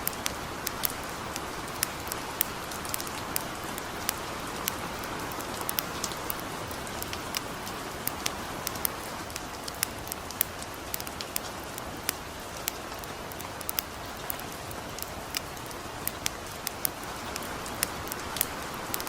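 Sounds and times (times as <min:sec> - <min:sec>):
campfire crackling and popping: 0:00.0 - 0:19.0
gentle rain falling: 0:00.0 - 0:19.0.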